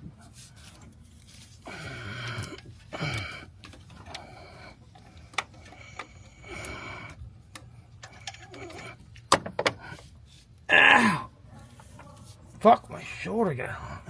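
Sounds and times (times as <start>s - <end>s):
rustling noise: 0.0s - 1.7s.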